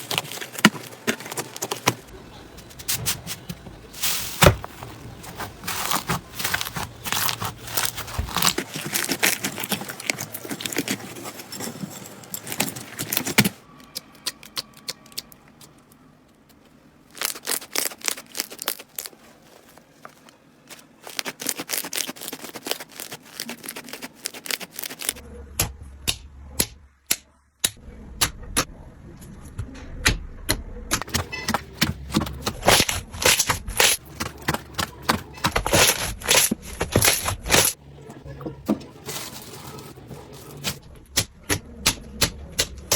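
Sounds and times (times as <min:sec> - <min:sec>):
slime crackling and popping: 0:17.1 - 0:19.3, 0:20.8 - 0:25.2, 0:32.0 - 0:37.8.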